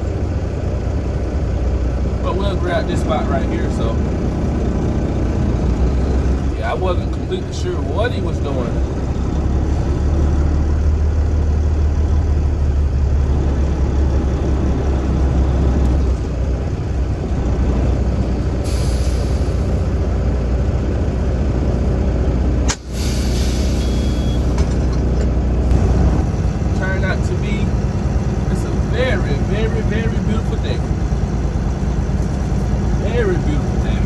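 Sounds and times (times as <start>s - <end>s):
truck engine running: 0.0s - 34.0s
air hiss: 22.7s - 24.5s
air brake click and hiss: 22.7s - 24.8s.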